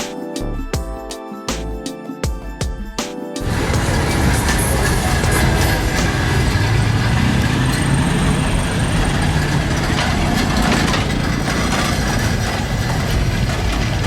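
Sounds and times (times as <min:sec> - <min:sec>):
car engines idling: 0:03.4 - 0:14.0
street noise: 0:03.4 - 0:14.0.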